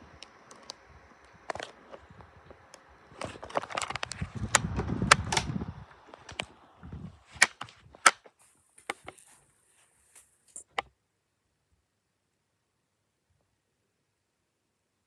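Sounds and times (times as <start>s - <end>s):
sharp clicks: 0.1s - 6.5s, 7.3s - 8.3s.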